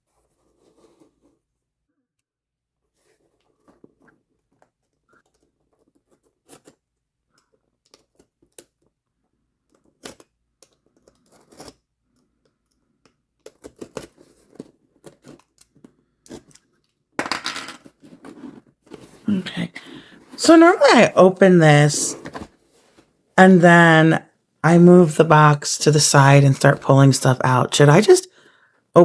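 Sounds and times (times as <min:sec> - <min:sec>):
clicks and scrapes of handling box: 0:09.7 - 0:17.0, 0:17.8 - 0:19.2.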